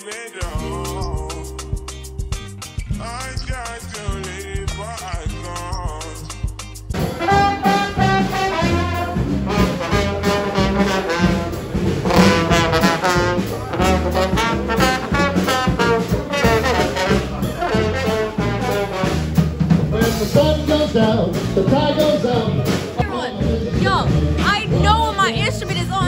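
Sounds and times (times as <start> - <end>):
repeating bass line: 0.4 - 26.0
trombone and trumpet playing: 6.9 - 26.0.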